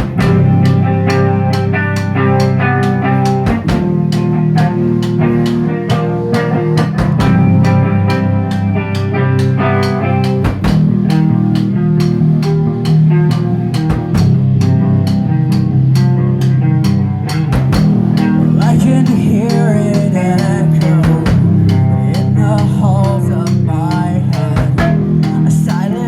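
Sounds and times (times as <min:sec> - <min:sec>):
bass guitar: 0:00.0 - 0:26.0
distorted electric guitars: 0:00.0 - 0:26.0
drum kit beat: 0:00.0 - 0:26.0.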